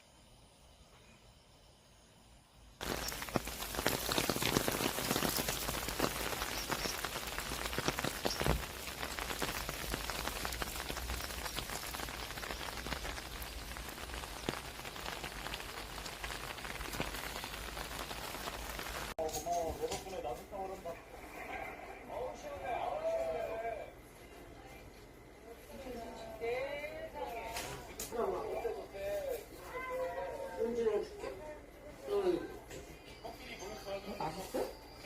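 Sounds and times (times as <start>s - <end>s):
steady rain: 2.8s - 24.0s.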